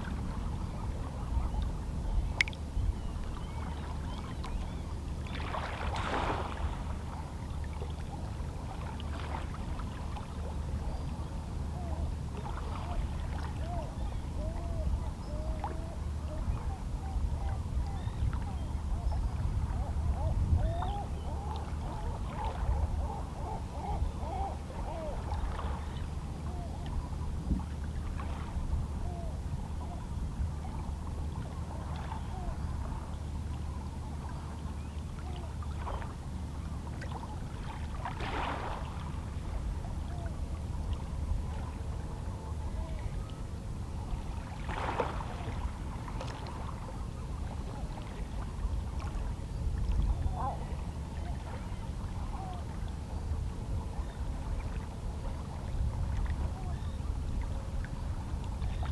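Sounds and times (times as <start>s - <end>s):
low rumble of sea: 0.0s - 58.9s
distant seabird calls: 12.7s - 27.4s, 56.5s - 57.2s.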